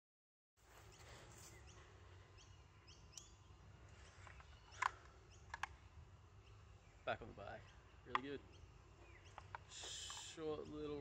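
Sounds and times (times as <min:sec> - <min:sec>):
birds chirping faintly: 0:00.6 - 0:11.0
low steady rumble: 0:01.2 - 0:09.8
sharp clicks: 0:04.2 - 0:05.8, 0:08.1 - 0:08.4, 0:09.3 - 0:10.4.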